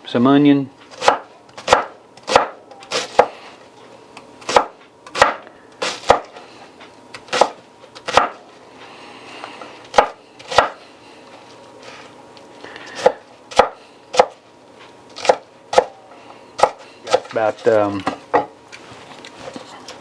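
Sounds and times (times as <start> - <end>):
knife chopping on cutting board: 0.9 - 3.4, 4.4 - 6.4, 7.2 - 8.5, 9.9 - 10.8, 12.9 - 14.4, 15.2 - 16.0, 16.6 - 17.4.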